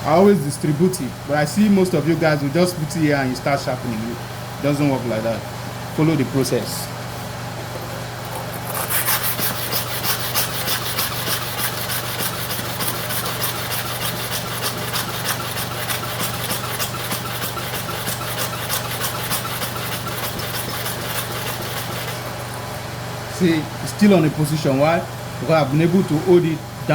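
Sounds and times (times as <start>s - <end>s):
blade rubbing on sharpening stone: 8.3s - 22.6s.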